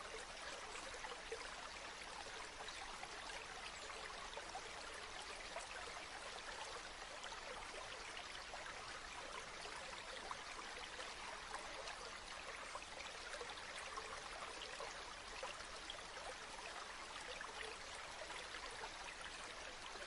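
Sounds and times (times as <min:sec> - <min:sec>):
stream babbling over stones: 0:00.0 - 0:20.0.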